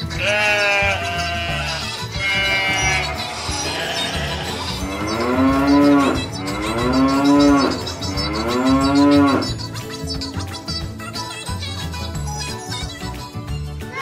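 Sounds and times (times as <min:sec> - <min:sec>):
cow mooing: 0:00.2 - 0:09.5.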